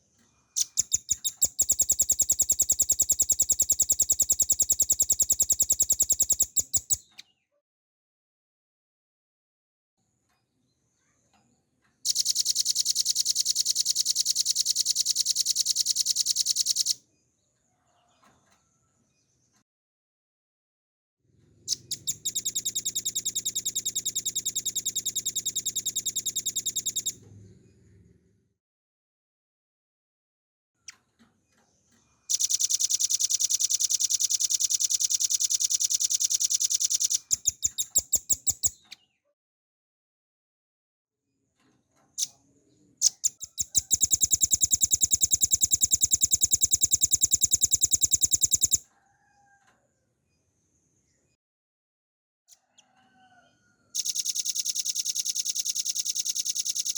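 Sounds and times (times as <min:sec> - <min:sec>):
soft bird chip: 0:00.5 - 0:07.3
bird rattling trill: 0:00.6 - 0:07.0, 0:12.1 - 0:17.0, 0:21.7 - 0:27.2, 0:32.3 - 0:38.8, 0:43.0 - 0:48.8, 0:54.0 - 0:56.9
faint short bird chirps: 0:21.6 - 0:28.0.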